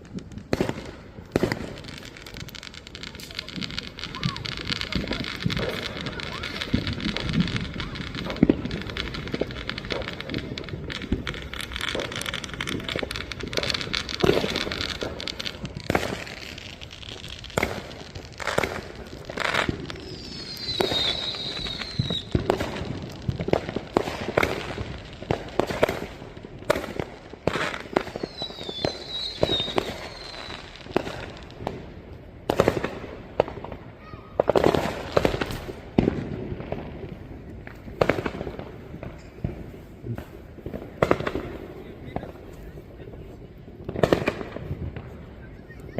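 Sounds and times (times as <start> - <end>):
fireworks bangs and pops: 0.0 - 45.9
fireworks crackling: 0.0 - 45.9
firework whistle falling in pitch: 20.1 - 22.3.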